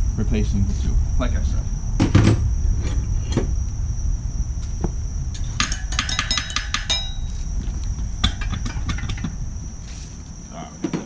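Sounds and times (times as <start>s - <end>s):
metal tools clinking on wheel nuts: 5.4s - 7.4s.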